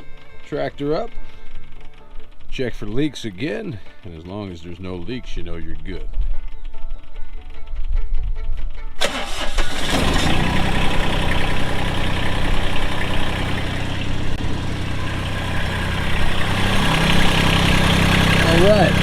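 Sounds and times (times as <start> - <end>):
diesel tractor engine idling: 0.0 - 4.7, 9.0 - 19.0.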